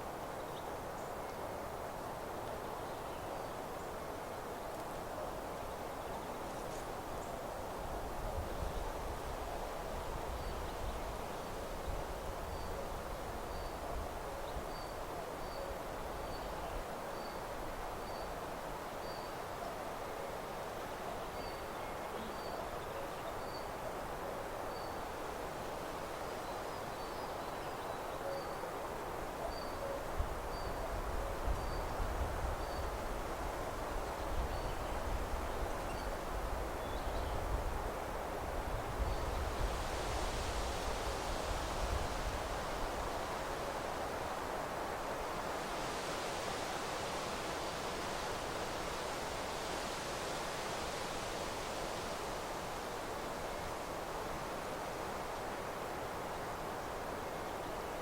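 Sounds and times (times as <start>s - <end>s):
wind rustling leaves: 0.0s - 58.0s
low wind rumble on microphone: 7.0s - 16.8s, 29.4s - 57.8s.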